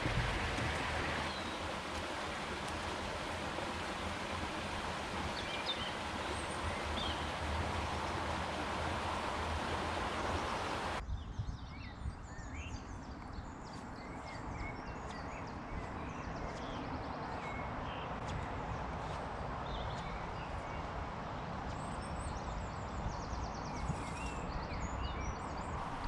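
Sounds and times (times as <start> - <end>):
small birds chirping: 0.0 - 11.0
steady rushing noise: 0.0 - 11.0
low wind rumble: 0.0 - 13.5, 14.4 - 26.0.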